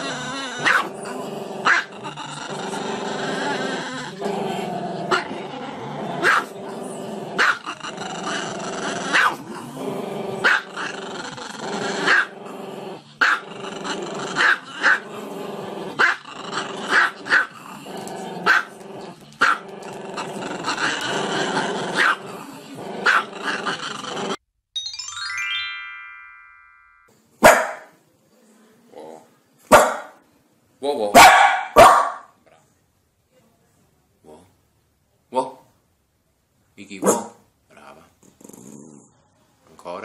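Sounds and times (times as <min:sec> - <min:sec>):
dog barking: 0:00.6 - 0:00.9, 0:06.2 - 0:06.5, 0:07.4 - 0:07.6, 0:09.1 - 0:09.4, 0:10.4 - 0:10.6, 0:18.5 - 0:18.7, 0:22.0 - 0:22.2, 0:23.0 - 0:23.3, 0:27.4 - 0:27.9, 0:29.7 - 0:30.2, 0:31.2 - 0:32.4, 0:37.0 - 0:37.4.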